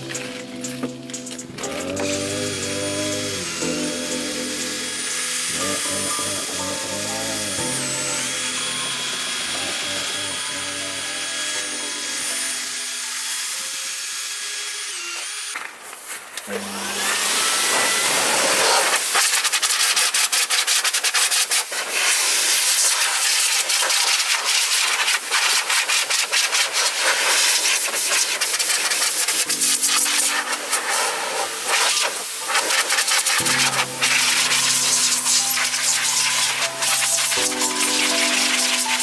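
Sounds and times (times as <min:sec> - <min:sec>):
background music: 0:00.0 - 0:13.8, 0:29.3 - 0:31.6, 0:32.9 - 0:39.0
sandpaper scrubbing plastic: 0:17.0 - 0:39.0.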